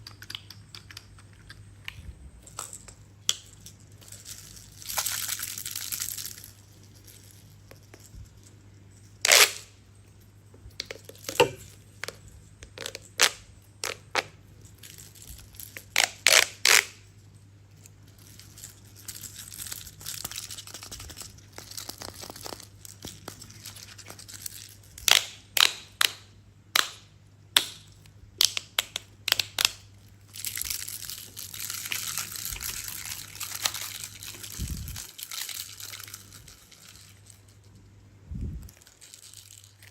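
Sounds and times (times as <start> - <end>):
crinkly rustling: 17.7 - 24.9, 30.0 - 38.0, 38.6 - 39.9.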